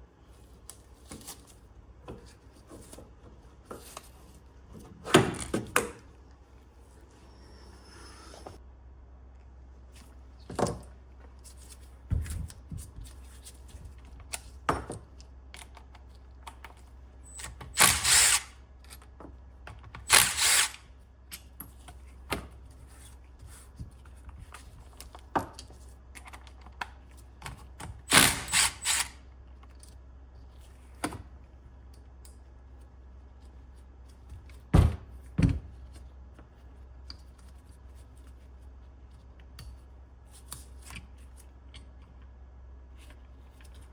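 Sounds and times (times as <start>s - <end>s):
power tool bursts: 17.8s - 18.5s, 20.1s - 20.8s, 28.1s - 29.2s.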